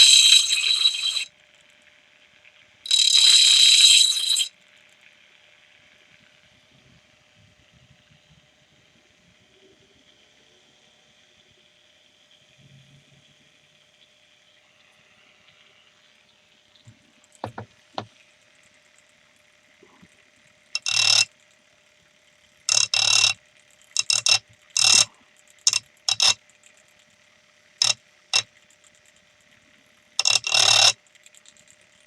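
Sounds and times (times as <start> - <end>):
grinder motor hum: 0.0 - 1.3, 2.9 - 4.5, 17.4 - 18.1, 20.8 - 21.3, 22.7 - 23.4, 24.0 - 26.4, 27.8 - 28.4, 30.2 - 30.9
tool grinding on wheel: 0.0 - 1.3, 2.9 - 4.5, 20.8 - 21.3, 22.7 - 23.4, 24.0 - 26.4, 27.8 - 28.5, 30.2 - 31.0.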